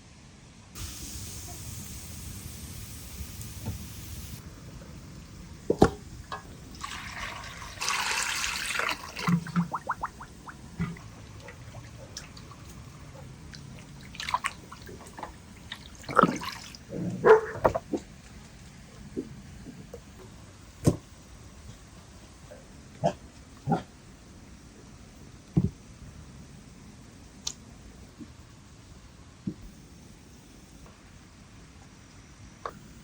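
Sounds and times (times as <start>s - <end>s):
liquid pouring and trickling: 6.2s - 16.9s.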